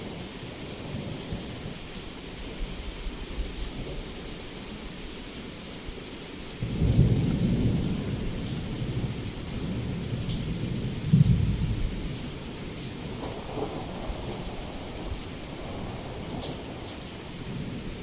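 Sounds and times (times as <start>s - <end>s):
heavy rain falling: 0.0s - 18.0s
low thunder rumble: 6.6s - 18.0s.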